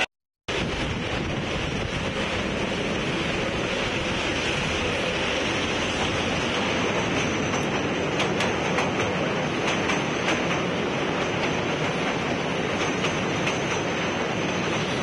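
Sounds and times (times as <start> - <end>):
moving train rolling noise: 0.0 - 15.0
wind on microphone: 0.5 - 6.7.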